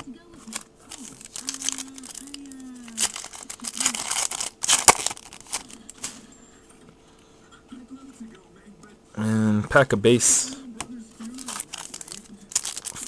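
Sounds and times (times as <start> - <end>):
wrapper sharp snap: 0.5 - 6.2
wrapper tearing and crinkling: 0.5 - 6.2, 11.2 - 13.0.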